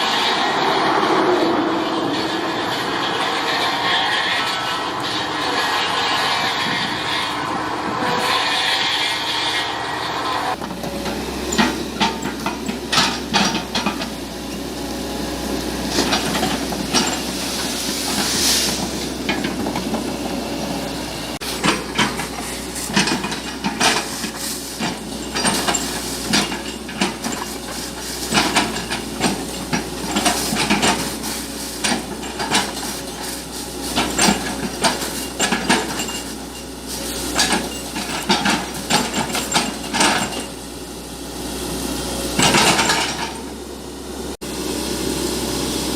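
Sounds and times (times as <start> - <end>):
heavy machinery running: 0.0 - 45.9
burst of hiss: 17.4 - 19.1.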